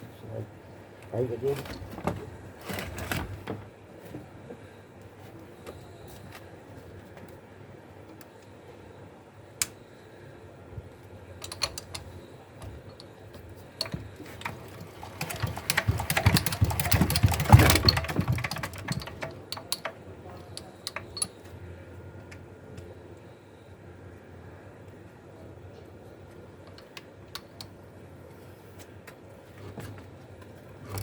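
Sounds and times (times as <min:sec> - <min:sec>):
clicks and knocks: 0:13.8 - 0:21.4.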